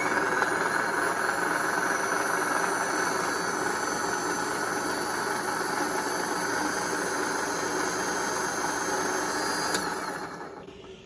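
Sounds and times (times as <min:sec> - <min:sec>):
high whine: 0:00.0 - 0:05.7
electric winch humming: 0:00.0 - 0:11.0.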